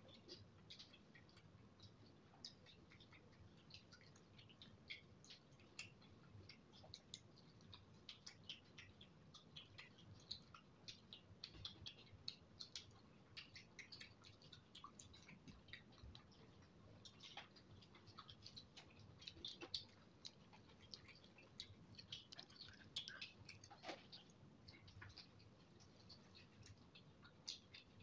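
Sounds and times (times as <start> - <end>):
wet chewing and lip-smacking: 0.0 - 28.0.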